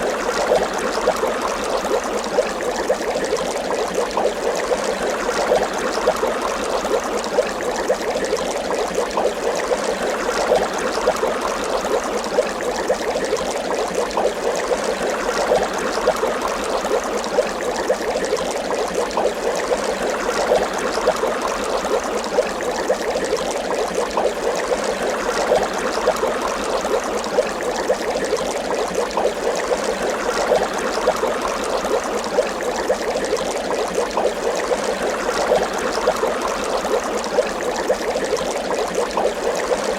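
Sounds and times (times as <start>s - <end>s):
water bubbling: 0.0s - 39.9s.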